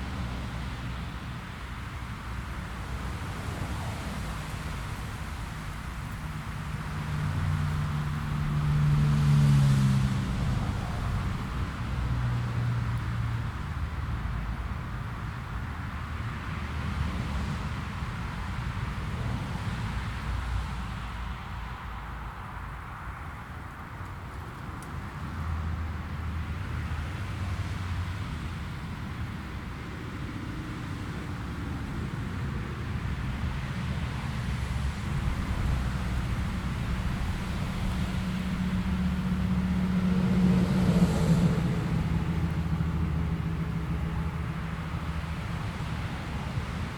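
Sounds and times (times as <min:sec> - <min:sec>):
jet airliner engines rumbling: 0:28.6 - 0:46.9.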